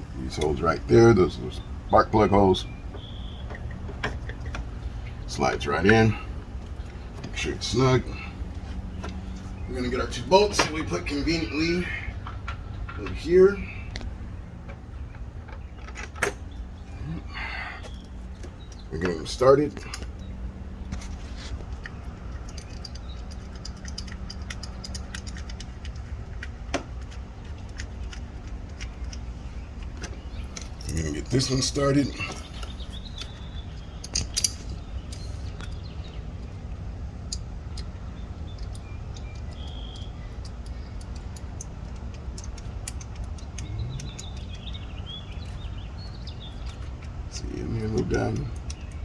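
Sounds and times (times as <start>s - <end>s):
low outdoor rumble: 0.0s - 49.0s
steady low hum: 0.0s - 49.0s
light clicks of bolts being worked: 0.3s - 49.0s
metallic clicks of bolt threading: 21.7s - 29.2s, 32.5s - 49.0s.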